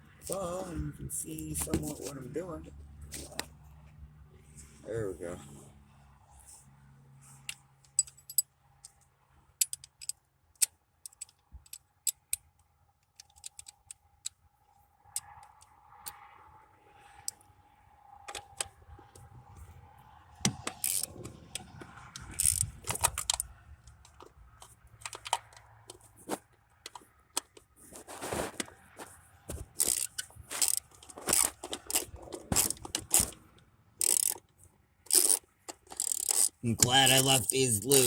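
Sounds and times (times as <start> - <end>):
socket wrench clicking and scraping: 3.1 - 3.5, 7.3 - 14.4, 15.1 - 16.3, 17.2 - 17.5, 18.2 - 19.4, 20.4 - 38.0.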